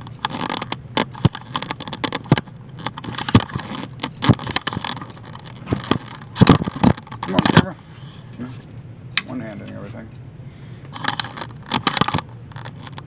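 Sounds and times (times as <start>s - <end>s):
objects clicking and knocking: 0.0s - 7.7s, 11.0s - 13.0s.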